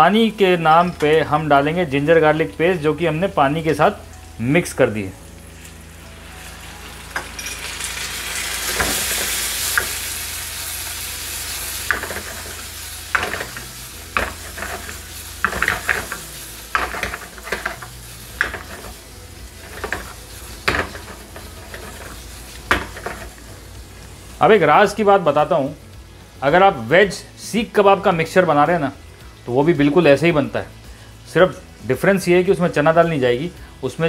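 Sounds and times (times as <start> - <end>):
vegetables sizzling in hot oil: 0.0 - 34.0
wooden spatula scraping a pan: 11.9 - 19.0, 19.6 - 23.4.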